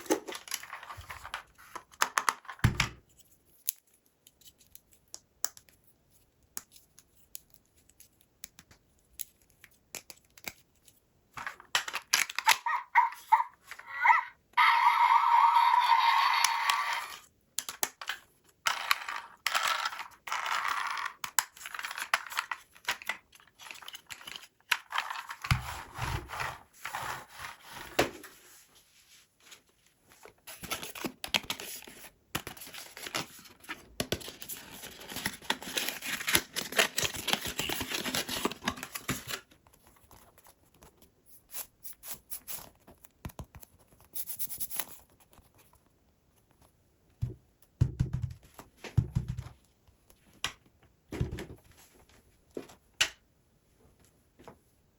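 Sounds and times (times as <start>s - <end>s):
packaging rustling and tearing: 30.5s - 40.3s.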